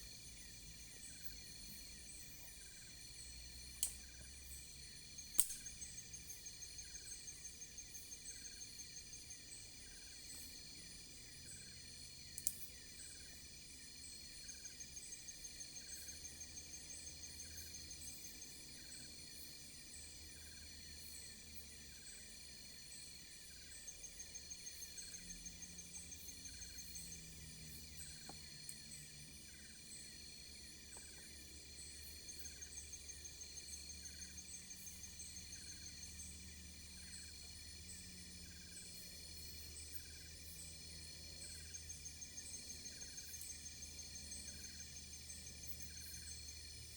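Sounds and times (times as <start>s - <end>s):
crickets chirping at night: 0.0s - 46.9s
sharp clicks: 5.4s - 5.7s.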